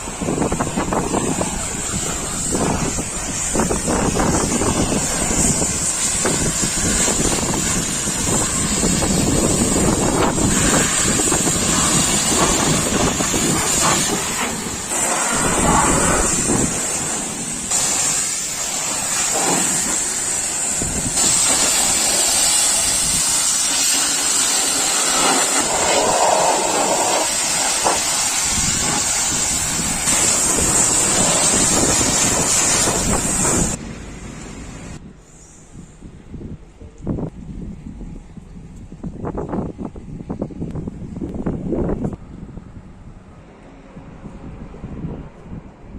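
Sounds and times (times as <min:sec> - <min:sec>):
pressure washer spraying water: 0:00.0 - 0:35.0.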